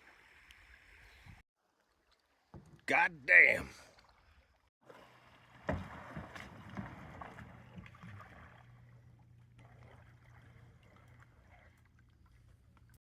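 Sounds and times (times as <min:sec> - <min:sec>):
paddle splashes: 0:01.6 - 0:12.9
paddle knocks on boat: 0:05.6 - 0:08.4.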